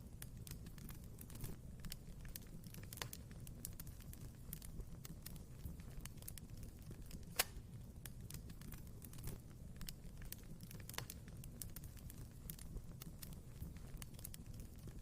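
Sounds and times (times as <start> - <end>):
fire crackling and snapping: 0.0 - 15.0
low rumble of flames: 0.0 - 15.0
loud pop from fire: 7.2 - 7.7.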